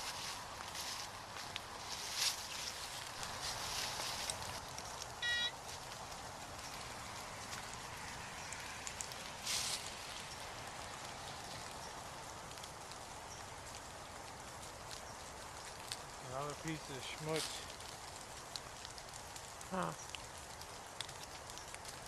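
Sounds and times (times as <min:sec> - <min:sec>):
rain falling: 0:00.0 - 0:22.0
rustling: 0:00.0 - 0:22.0
metal detector beep: 0:05.2 - 0:05.6.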